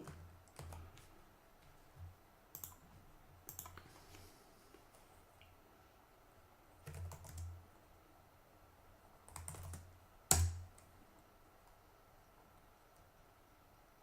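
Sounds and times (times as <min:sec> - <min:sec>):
computer keyboard typing: 0:00.0 - 0:01.0, 0:02.5 - 0:02.8, 0:03.5 - 0:03.8, 0:06.8 - 0:07.5, 0:09.3 - 0:10.8.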